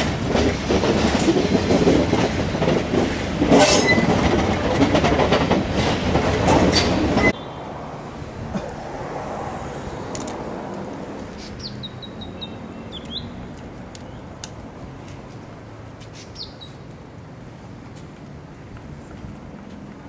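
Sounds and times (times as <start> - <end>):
steady background noise: 4.3 - 20.0
bird chirping: 11.4 - 13.4, 16.2 - 16.8.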